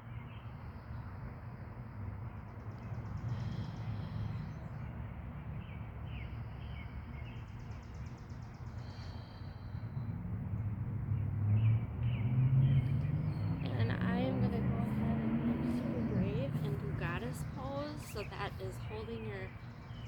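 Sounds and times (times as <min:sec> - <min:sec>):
low outdoor rumble: 0:08.5 - 0:20.0
birds chirping: 0:12.0 - 0:20.0.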